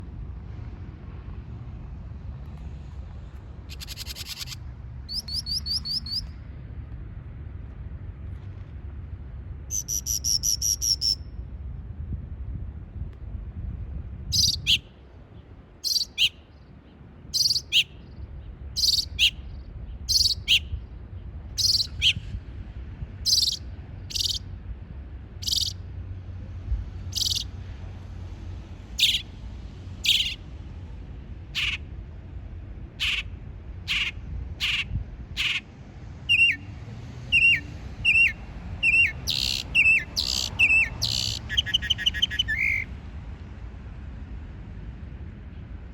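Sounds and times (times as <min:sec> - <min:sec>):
bird rattling trill: 0:03.7 - 0:06.2, 0:23.3 - 0:24.4, 0:25.4 - 0:25.8, 0:27.2 - 0:27.4, 0:37.4 - 0:41.4
bird calling: 0:03.7 - 0:06.3, 0:15.8 - 0:16.4, 0:17.4 - 0:17.9, 0:18.8 - 0:19.4, 0:23.3 - 0:24.4, 0:25.4 - 0:25.8, 0:27.2 - 0:27.5, 0:29.0 - 0:29.2, 0:30.0 - 0:30.4, 0:31.6 - 0:31.8, 0:33.0 - 0:33.3, 0:33.9 - 0:35.6, 0:36.3 - 0:36.6, 0:37.3 - 0:42.9.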